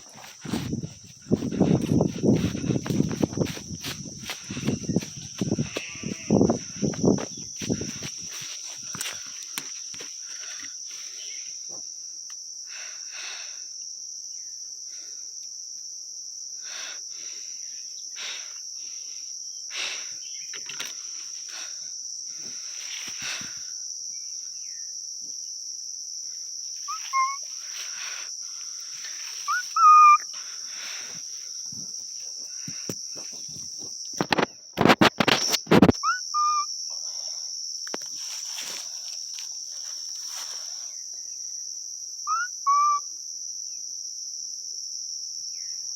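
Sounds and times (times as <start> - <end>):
rustling: 0.0 - 10.1, 38.0 - 40.8
crickets chirping: 0.0 - 45.9
bird chirps: 26.9 - 27.5, 29.4 - 30.3, 36.0 - 36.7, 42.3 - 43.0.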